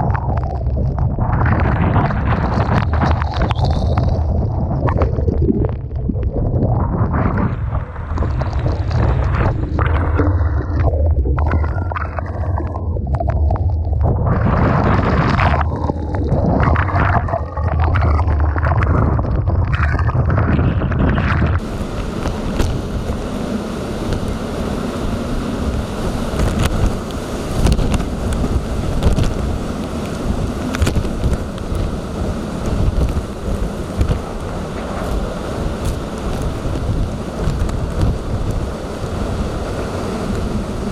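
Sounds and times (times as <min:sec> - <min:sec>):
hiss of wind and surf: 0:00.0 - 0:05.1, 0:06.6 - 0:19.8, 0:20.6 - 0:40.9
wind buffeting microphone: 0:00.0 - 0:40.9
crashing waves: 0:06.9 - 0:18.5, 0:20.8 - 0:40.9.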